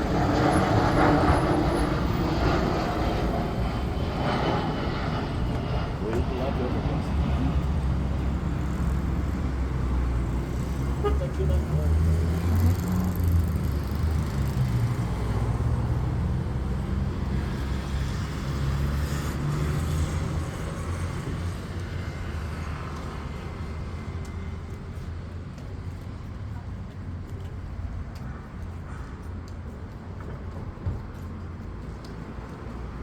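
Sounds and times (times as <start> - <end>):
jet engines rumbling: 0.0 - 23.6.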